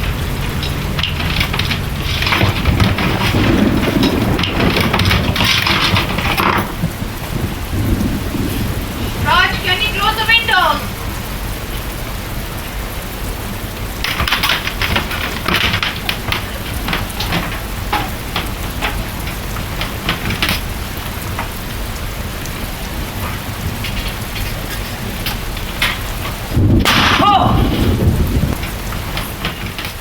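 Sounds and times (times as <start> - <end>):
low rumble: 0.0 - 9.9, 26.5 - 29.1
heavy rain: 0.0 - 30.0.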